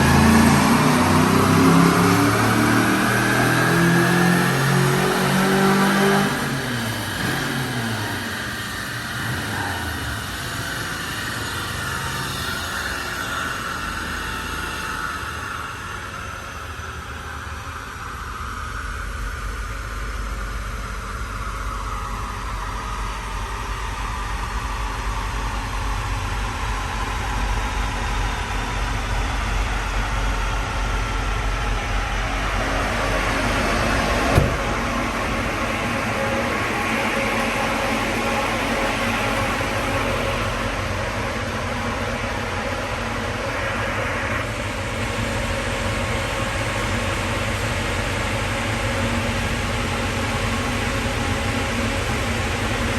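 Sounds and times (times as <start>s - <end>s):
car engine running: 0.0s - 52.9s.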